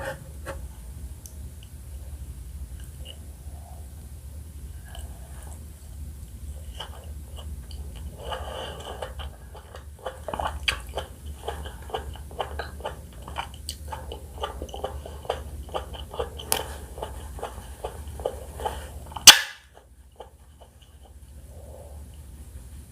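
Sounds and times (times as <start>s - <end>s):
low steady hum: 0.0s - 22.9s
wet chewing crackles: 4.8s - 22.3s.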